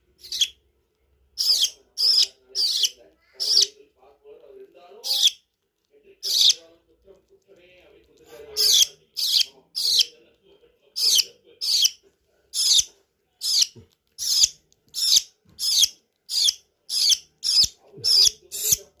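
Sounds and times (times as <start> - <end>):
bird chick begging calls: 6.2 - 6.6, 8.6 - 10.1, 13.4 - 18.8.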